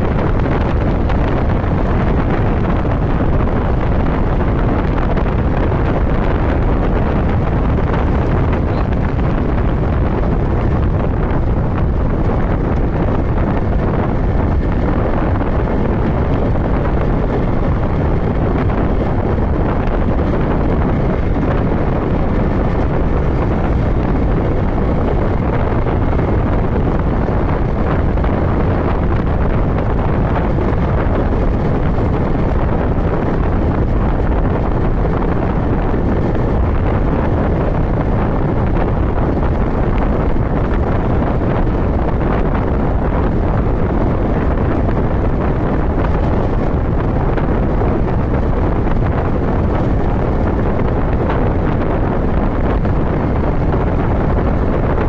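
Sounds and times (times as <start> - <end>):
motorcycle engine: 0.0 - 40.4
loud wind rushing over microphone: 0.0 - 55.0
road noise: 0.0 - 55.0.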